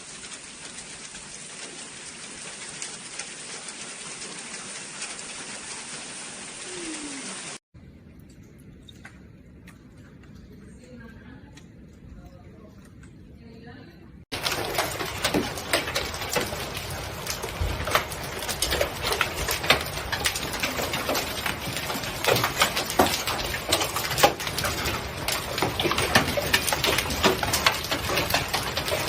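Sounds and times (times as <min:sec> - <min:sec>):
hailstones pelting hard surfaces: 0:14.3 - 0:29.0.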